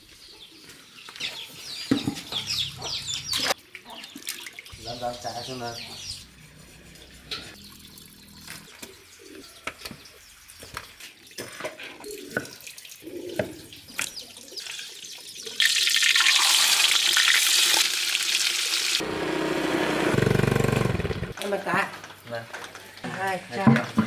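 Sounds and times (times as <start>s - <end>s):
water dripping and splashing: 3.6s - 4.8s, 6.9s - 9.0s, 9.8s - 18.8s.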